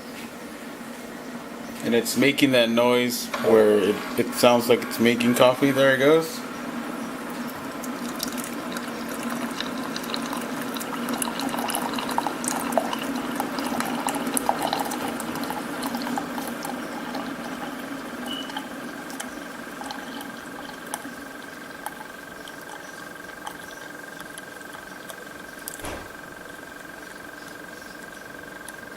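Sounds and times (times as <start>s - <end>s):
coffee maker pump humming: 0.0s - 28.9s
thin steady whine: 0.0s - 28.9s
coffee streaming into cup: 7.3s - 25.9s
small clicks and splutters: 7.4s - 25.9s.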